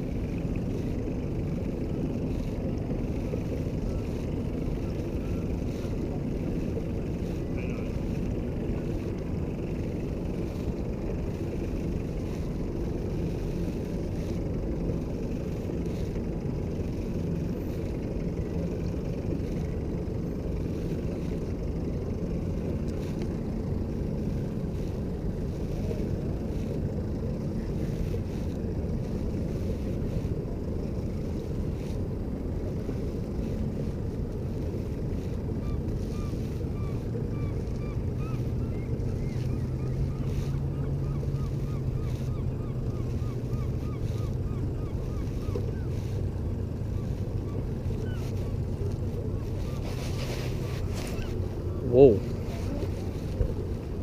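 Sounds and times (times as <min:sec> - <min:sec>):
boat motor rumbling: 0:00.0 - 0:54.0.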